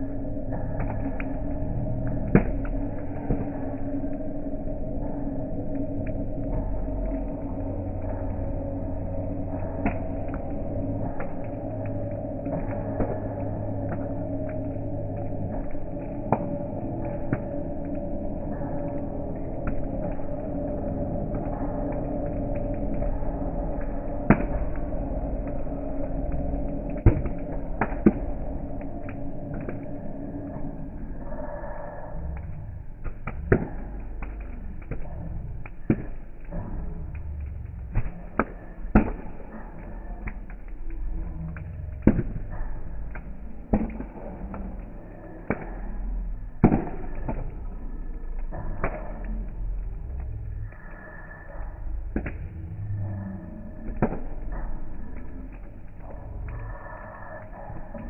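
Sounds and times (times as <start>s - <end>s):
campfire rumble: 0.0s - 58.0s
burning wood crackling and popping: 0.4s - 30.6s.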